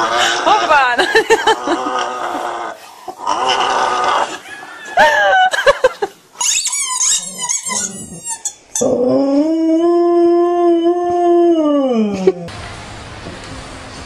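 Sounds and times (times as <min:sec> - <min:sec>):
high squeaks: 0:06.4 - 0:08.9
dog howling: 0:08.8 - 0:12.5.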